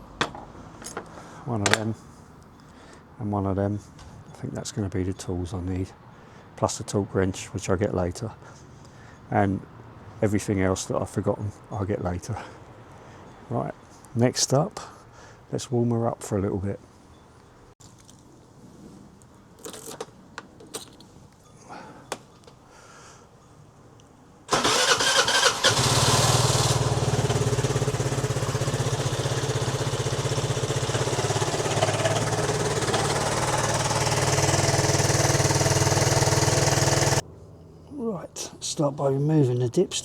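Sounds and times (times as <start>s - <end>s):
scooter engine starting and idling: 24.5s - 37.2s.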